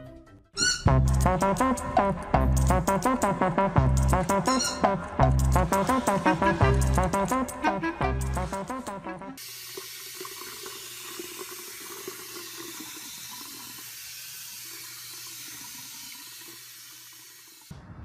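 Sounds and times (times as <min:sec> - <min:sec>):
music: 0:00.0 - 0:09.4
sink sprayer water hissing: 0:09.4 - 0:17.7.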